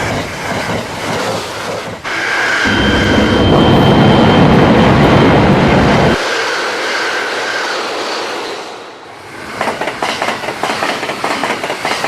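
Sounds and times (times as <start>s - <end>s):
train rushing noise: 0.0s - 12.0s.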